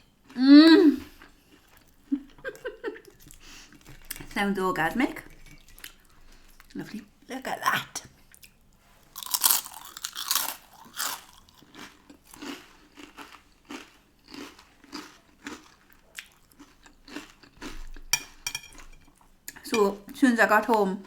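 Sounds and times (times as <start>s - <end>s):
chewing: 8.3s - 19.6s
crunching bite: 9.2s - 17.8s.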